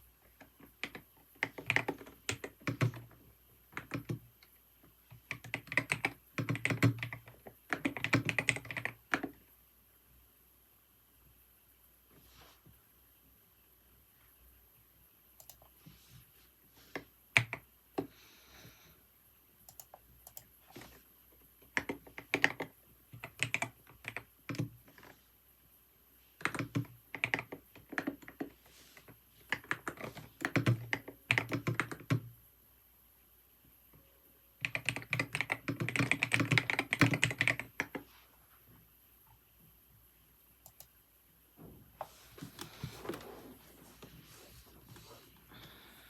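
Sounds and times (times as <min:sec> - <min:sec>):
typing on a keyboard: 0:00.3 - 0:04.3, 0:05.1 - 0:09.4, 0:17.4 - 0:18.1, 0:19.6 - 0:20.9, 0:21.6 - 0:25.1, 0:26.4 - 0:28.5, 0:29.5 - 0:32.3, 0:34.6 - 0:38.0.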